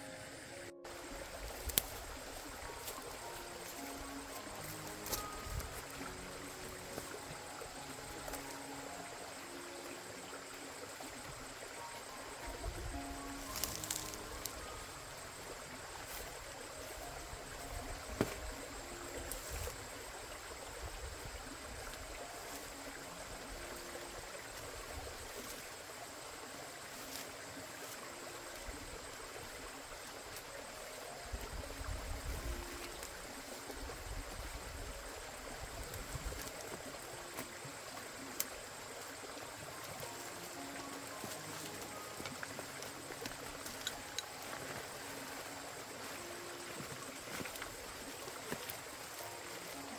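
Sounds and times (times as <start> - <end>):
water running: 32.3 - 49.9.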